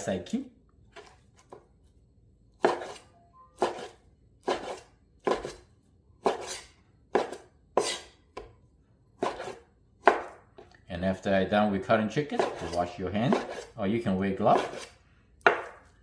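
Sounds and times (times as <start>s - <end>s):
knife cutting on cutting board: 2.6s - 5.6s, 6.2s - 8.1s, 9.2s - 10.4s, 12.4s - 13.8s, 14.5s - 15.8s.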